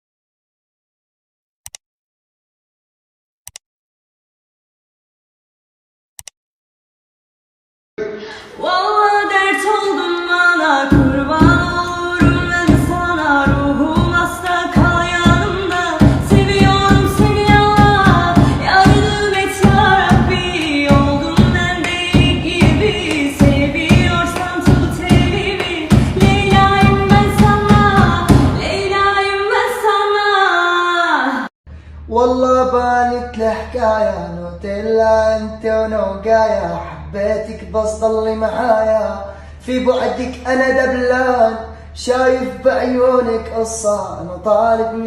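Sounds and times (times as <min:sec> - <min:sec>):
person singing: 0:08.0 - 0:31.5
music with steady beat: 0:10.9 - 0:28.9.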